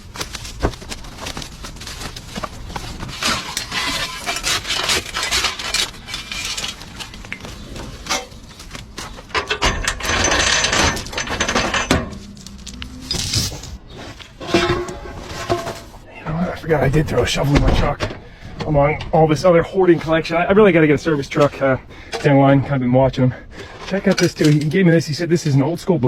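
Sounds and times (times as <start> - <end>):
metal scraping clatter: 2.7 - 16.0
metal objects clanking: 3.1 - 16.0, 23.9 - 24.8.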